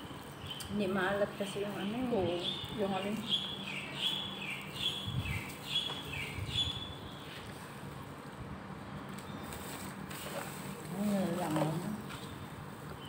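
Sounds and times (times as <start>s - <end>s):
small bird chirping: 0.0s - 7.5s.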